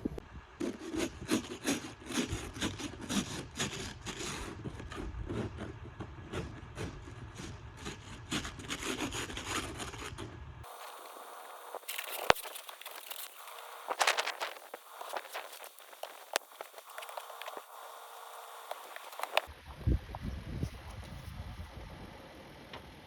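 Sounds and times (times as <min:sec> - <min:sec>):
snow scraped off ice: 0:10.6 - 0:19.5.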